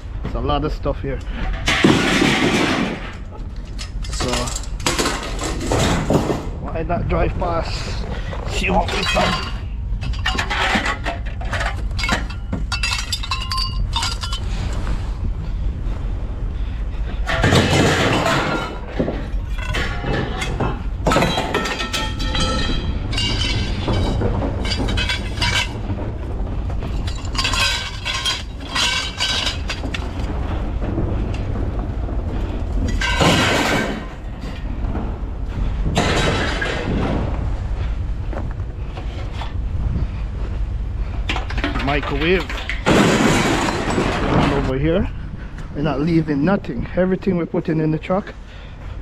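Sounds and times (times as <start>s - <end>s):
truck engine and road rumble: 0.0s - 49.0s
clinking and rattling: 1.4s - 6.6s, 8.3s - 15.0s, 17.2s - 37.3s, 41.2s - 44.7s.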